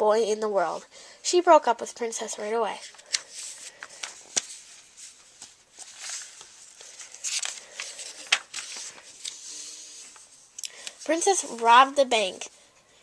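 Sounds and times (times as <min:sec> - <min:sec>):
paper rustling: 0:02.7 - 0:11.9.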